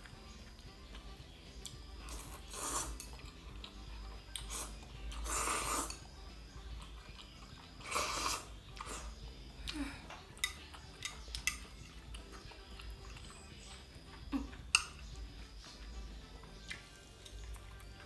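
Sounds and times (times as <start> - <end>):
eating sounds: 0.0 - 18.0
utensils clicking against a dish: 2.1 - 6.0, 10.3 - 13.4, 14.6 - 15.0.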